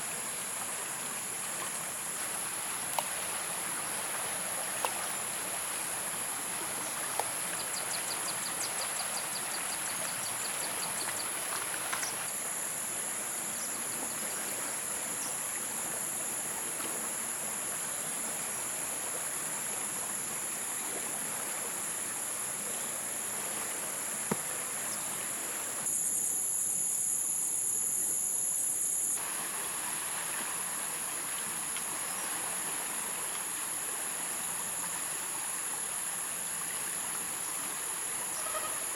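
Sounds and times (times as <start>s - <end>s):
rapid ticking insect trill: 0.0s - 19.1s, 24.9s - 38.9s
flowing stream: 0.0s - 26.1s, 29.1s - 38.9s
insect chorus: 0.0s - 38.9s.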